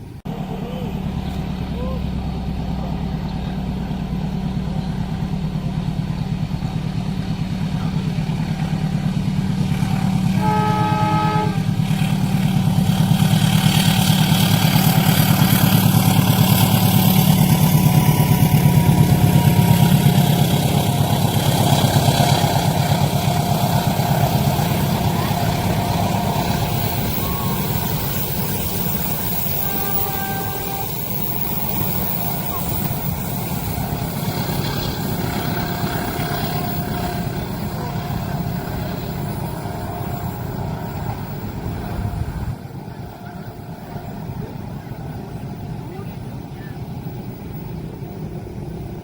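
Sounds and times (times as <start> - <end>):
train engine rumble: 0.0 - 49.0
wheels on rails: 0.0 - 49.0
train horn blast: 9.7 - 44.7.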